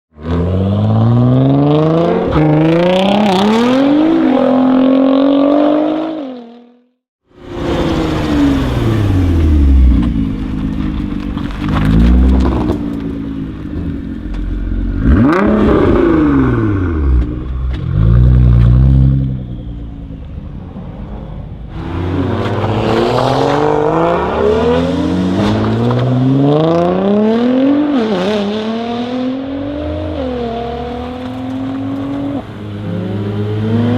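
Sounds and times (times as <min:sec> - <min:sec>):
car engine accelerating: 0:07.4 - 0:33.9
car passing by: 0:20.6 - 0:26.9.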